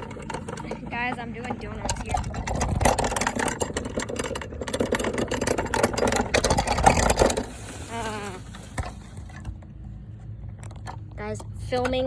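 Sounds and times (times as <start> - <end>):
toy car motor rattling: 0.0 - 9.6.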